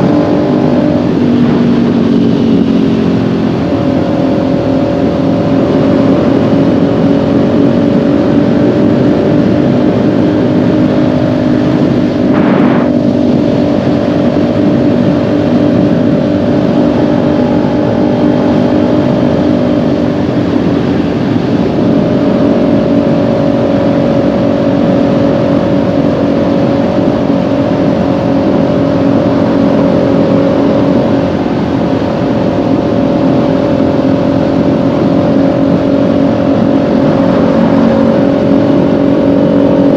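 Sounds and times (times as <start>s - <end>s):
motorcycle engine cruising: 0.0s - 39.9s
brief rush of noise: 12.3s - 12.9s.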